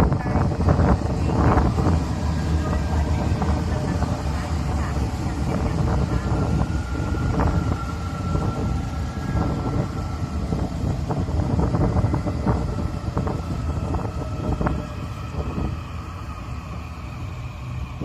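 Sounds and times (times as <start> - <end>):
thin steady whine: 0.0 - 18.0
train rumbling past: 0.0 - 18.0.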